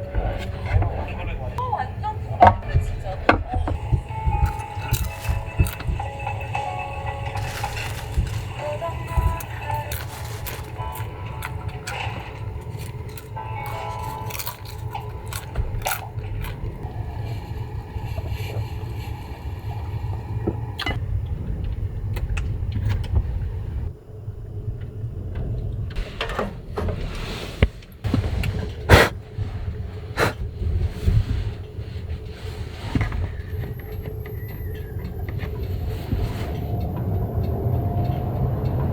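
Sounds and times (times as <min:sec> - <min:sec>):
knocks and scrapes: 0:02.4 - 0:16.9, 0:26.0 - 0:34.1
gusting wind on microphone: 0:15.6 - 0:38.9.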